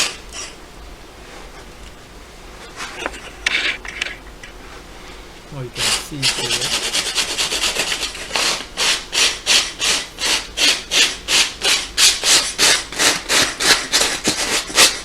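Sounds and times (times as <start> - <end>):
sandpaper scraping leather: 5.8 - 15.0.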